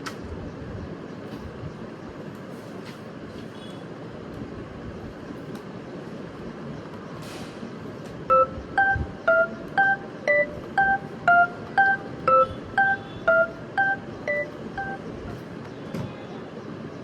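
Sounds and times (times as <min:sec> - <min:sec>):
telephone keypad beeps: 0:08.3 - 0:15.1.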